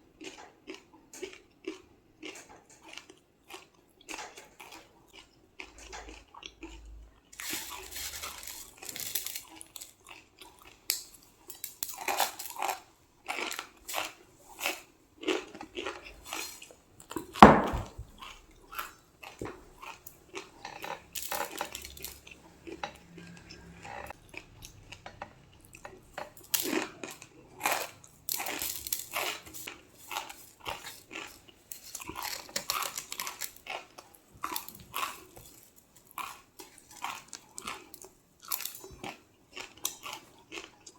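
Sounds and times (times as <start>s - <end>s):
crunching and chewing crisp food: 0.0s - 40.9s.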